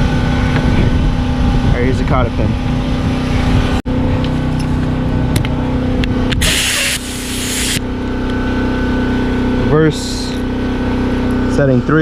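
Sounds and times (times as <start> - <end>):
aerosol spray hiss: 6.4 - 7.8.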